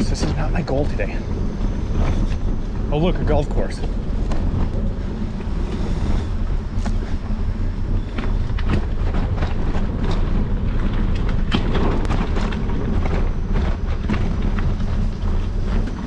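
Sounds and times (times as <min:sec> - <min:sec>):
bicycle rumbling on dirt trail: 0:00.0 - 0:16.0
wind buffeting microphone: 0:00.0 - 0:16.0
bike rattling clicks and knocks: 0:06.8 - 0:16.0.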